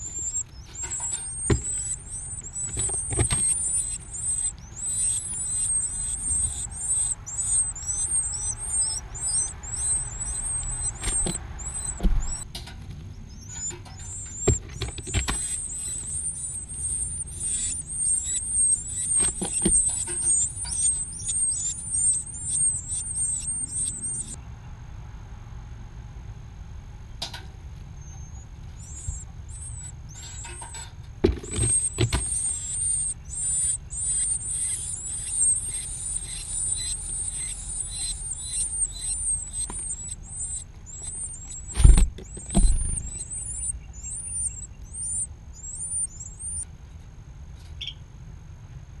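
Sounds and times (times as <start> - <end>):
nestlings chirping: 0.0 - 24.4, 28.0 - 46.7
low thumps: 10.0 - 12.5, 41.6 - 43.3.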